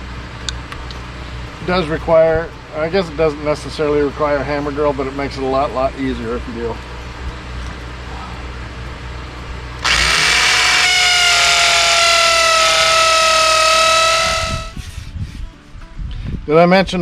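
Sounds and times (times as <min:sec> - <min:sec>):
hammer drill boring into concrete: 0:09.8 - 0:14.7.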